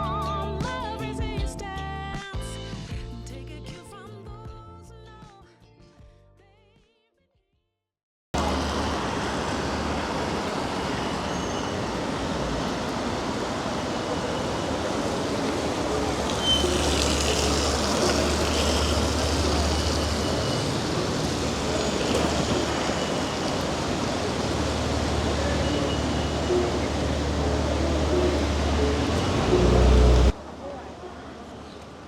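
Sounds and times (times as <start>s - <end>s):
passing vehicle rumble: 8.4s - 32.0s
tyres hissing on wet road: 8.4s - 32.0s.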